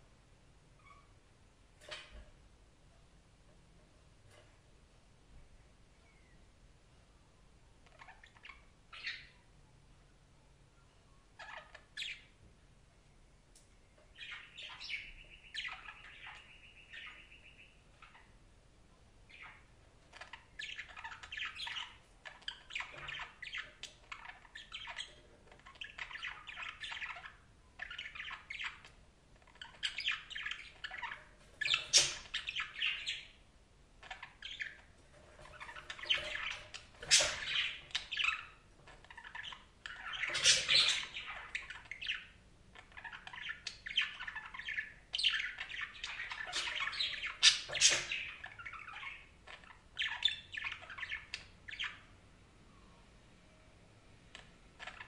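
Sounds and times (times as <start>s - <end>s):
budgerigars chattering: 29.6s - 33.4s, 34.0s - 52.0s.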